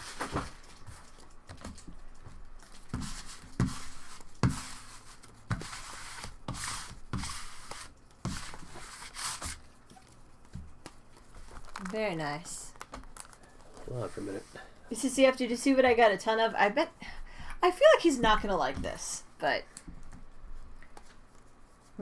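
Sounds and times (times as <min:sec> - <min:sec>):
rustling and crinkling: 0:00.0 - 0:14.7, 0:19.8 - 0:22.0.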